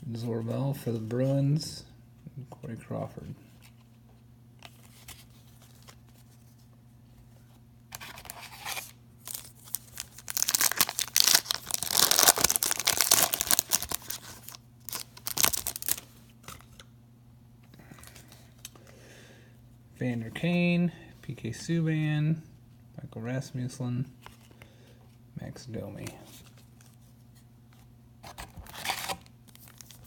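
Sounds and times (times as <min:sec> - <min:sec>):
foil wrapper tearing and crinkling: 0:08.2 - 0:16.0.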